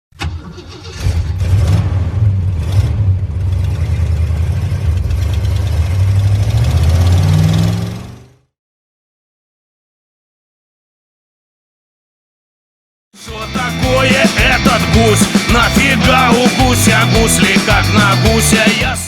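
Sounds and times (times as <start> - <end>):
off-road vehicle engine droning: 1.0 - 8.5.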